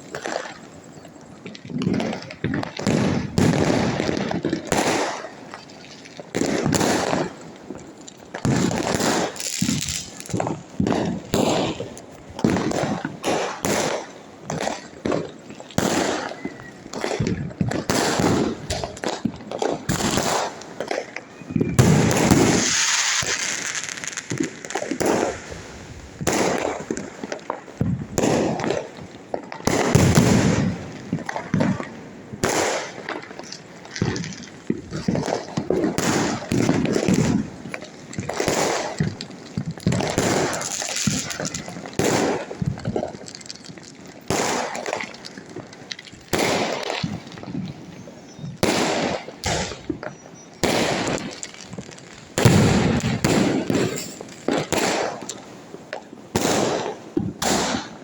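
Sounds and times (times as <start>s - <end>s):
fireworks crackling: 0.0s - 58.0s
firecracker bangs: 1.7s - 5.3s, 8.4s - 15.2s, 15.8s - 27.2s, 29.6s - 33.2s, 33.9s - 43.2s, 44.2s - 45.1s, 46.3s - 47.7s, 48.3s - 55.4s, 56.3s - 58.0s.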